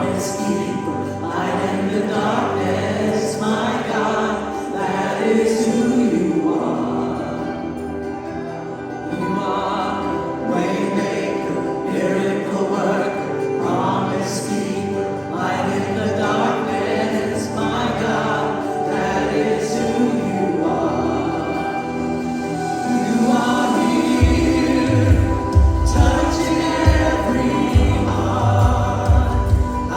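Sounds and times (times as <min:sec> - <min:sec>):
group of voices singing: 0:00.0 - 0:29.9
sustained instrumental accompaniment: 0:06.2 - 0:29.9.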